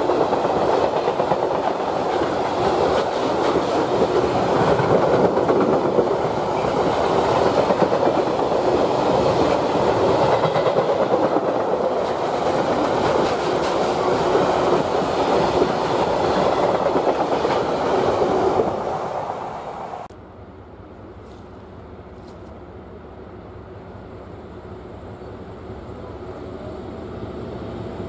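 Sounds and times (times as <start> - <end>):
freight train wheels rumbling on rails: 0.0 - 20.1.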